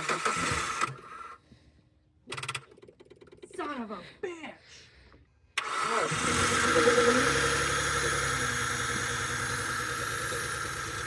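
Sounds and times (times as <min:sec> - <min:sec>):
car engine idling rough with misfire: 0:05.6 - 0:11.0.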